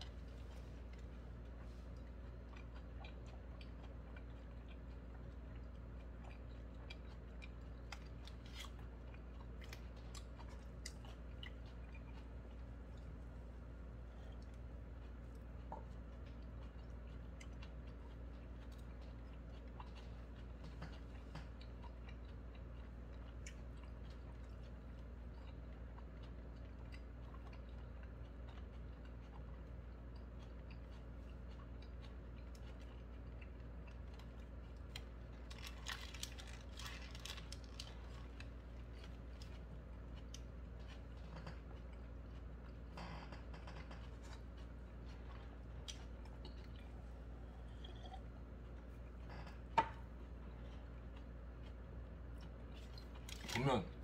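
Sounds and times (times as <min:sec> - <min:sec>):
quiet chewing: 0:00.0 - 0:54.0
steady low hum: 0:00.0 - 0:54.0
paper wrapper crinkling: 0:35.5 - 0:38.0.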